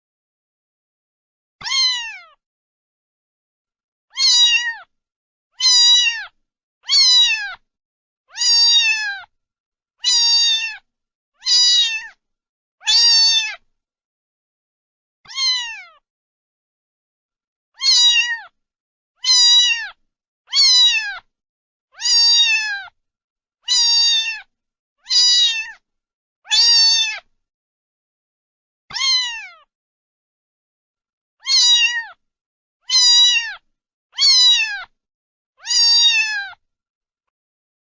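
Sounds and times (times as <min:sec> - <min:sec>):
cat meowing: 0:01.6 - 0:02.4, 0:04.1 - 0:04.9, 0:05.6 - 0:07.6, 0:08.3 - 0:09.3, 0:10.0 - 0:12.2, 0:12.8 - 0:13.6, 0:15.3 - 0:16.0, 0:17.8 - 0:18.6, 0:19.2 - 0:21.3, 0:22.0 - 0:23.0, 0:23.6 - 0:25.8, 0:26.5 - 0:27.3, 0:28.9 - 0:29.7, 0:31.4 - 0:32.2, 0:32.8 - 0:33.6, 0:34.2 - 0:34.9, 0:35.6 - 0:36.6.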